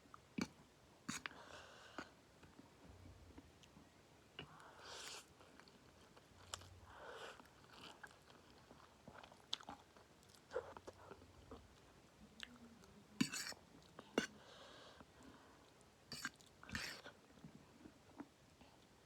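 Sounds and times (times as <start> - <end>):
person chewing and slurping noodles: 16.1 - 17.1.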